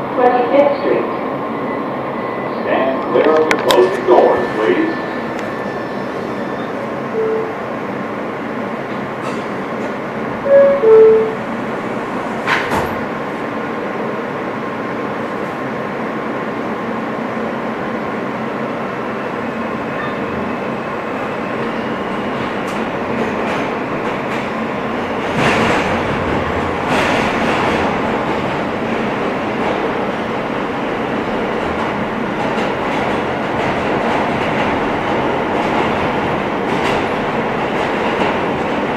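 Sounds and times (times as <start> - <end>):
train rumbling along track: 0.0 - 38.9
two-tone door chime: 10.5 - 11.4.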